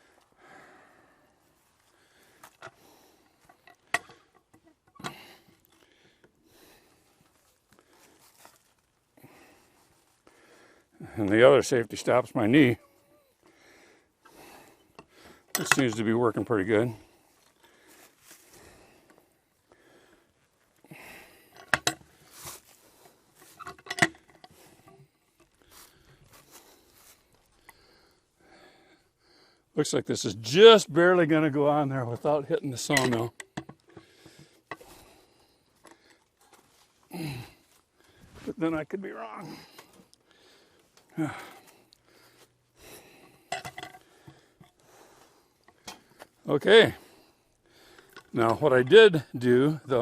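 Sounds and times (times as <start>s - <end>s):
metallic clanks and knocks: 3.5s - 5.2s, 15.0s - 16.1s, 21.6s - 22.0s, 23.4s - 25.0s, 32.9s - 34.0s, 43.5s - 44.4s
metallic knocks and clinks: 15.5s - 16.0s, 23.6s - 25.0s, 43.5s - 44.0s
person grunting: 37.1s - 37.6s, 39.1s - 39.7s, 41.2s - 41.5s.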